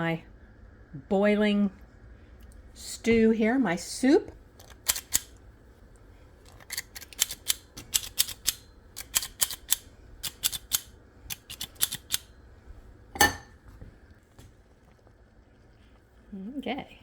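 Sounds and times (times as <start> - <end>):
spoons clicking and tapping: 6.5 - 12.3
stew boiling: 9.6 - 17.0
spoon clanking on pot: 13.2 - 13.6.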